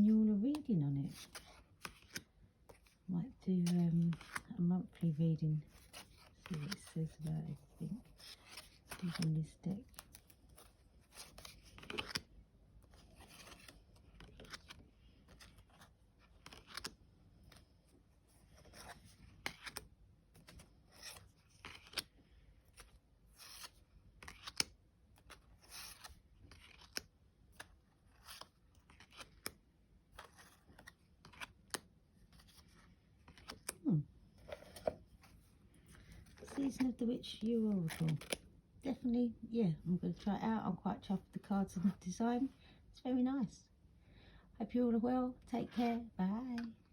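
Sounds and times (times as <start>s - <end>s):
cards being shuffled: 0.5s - 3.0s, 3.6s - 4.5s, 5.1s - 38.4s.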